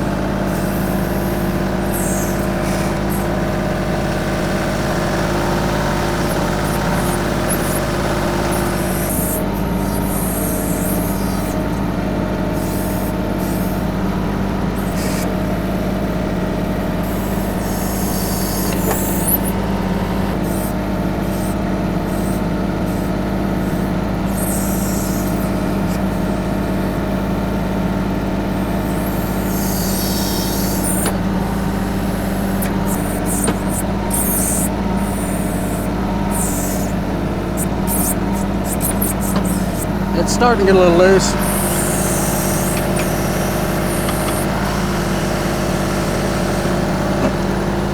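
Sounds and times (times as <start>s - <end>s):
tractor diesel engine running: 0.0s - 47.9s
high hissing squeals: 20.4s - 26.4s, 28.7s - 46.6s.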